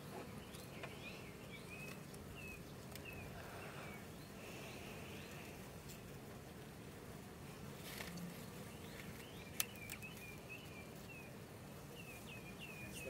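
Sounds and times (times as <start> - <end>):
beehive humming: 0.0 - 13.0
bird chirping: 0.2 - 5.5, 8.7 - 13.0.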